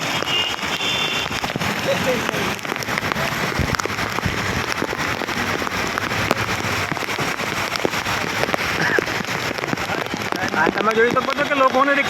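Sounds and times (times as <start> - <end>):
heavy rain on water: 0.0 - 12.0.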